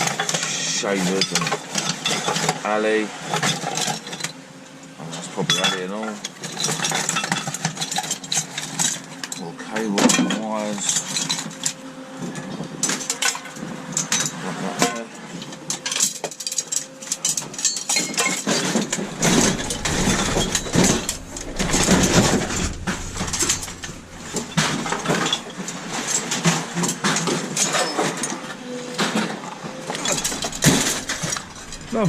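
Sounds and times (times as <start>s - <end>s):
scrap metal clinking and rattling: 29.9s - 32.0s.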